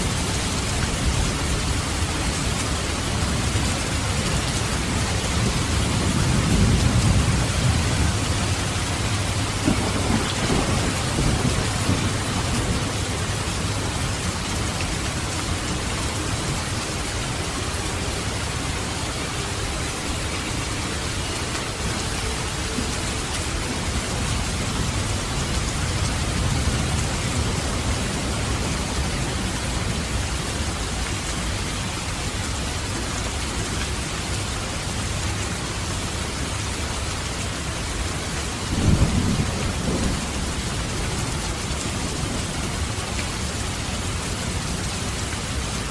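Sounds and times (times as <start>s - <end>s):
rain hissing: 0.0s - 45.9s
thunder rumbling: 3.2s - 16.8s, 38.6s - 42.9s.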